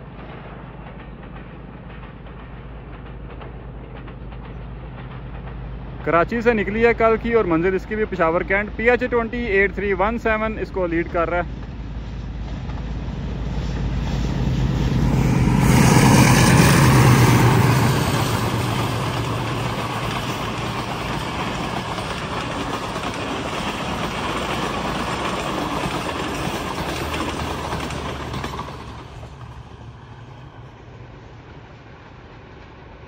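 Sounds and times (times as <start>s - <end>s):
train passing at speed: 0.0s - 33.0s
coach wheels running over rails: 12.4s - 30.6s.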